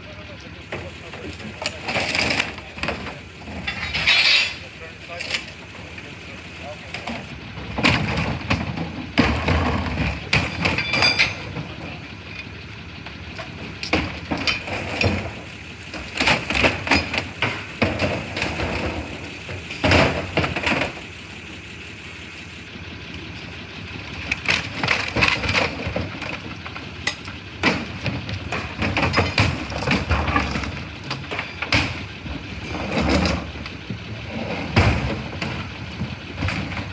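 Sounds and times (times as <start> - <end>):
knocks cracks and clattering: 16.0 - 21.0, 24.2 - 36.9.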